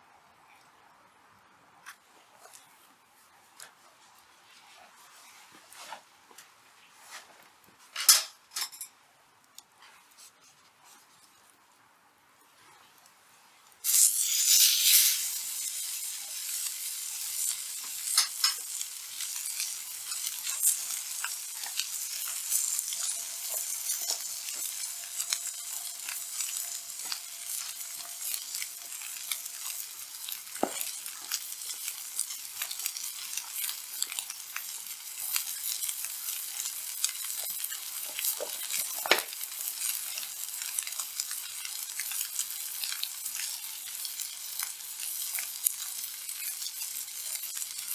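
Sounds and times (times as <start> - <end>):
steak sizzling on iron griddle: 13.8 - 47.9.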